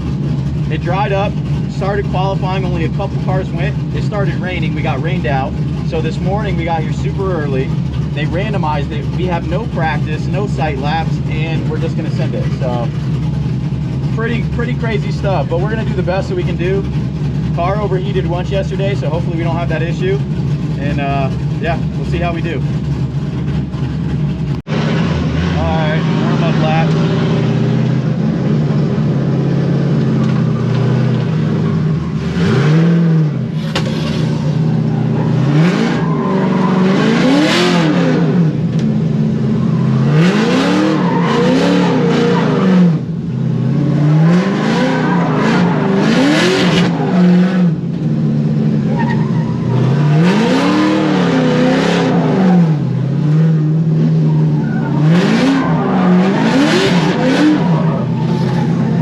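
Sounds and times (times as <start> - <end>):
car engine revving: 0.0 - 59.0
tires squealing and skidding: 31.6 - 38.3, 39.4 - 43.0, 44.0 - 47.8, 48.8 - 53.4, 54.0 - 59.0.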